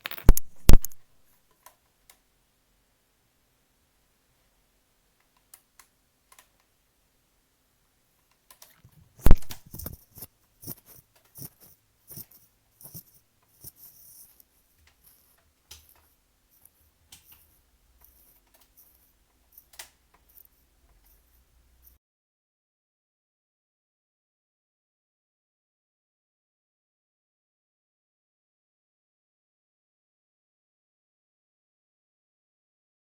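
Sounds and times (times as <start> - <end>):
light clicks and rattles: 8.3 - 22.0.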